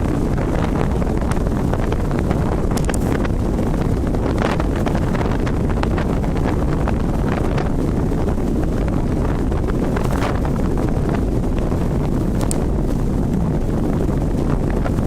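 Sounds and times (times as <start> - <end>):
wind buffeting microphone: 0.0 - 15.0
short crackles: 2.6 - 3.4, 9.6 - 13.7.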